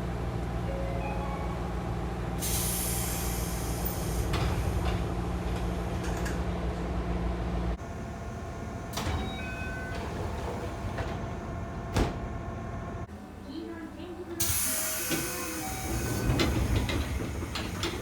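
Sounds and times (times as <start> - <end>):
train low hum: 0.0 - 18.0
train doors knocking shut: 8.5 - 13.0, 15.1 - 18.0.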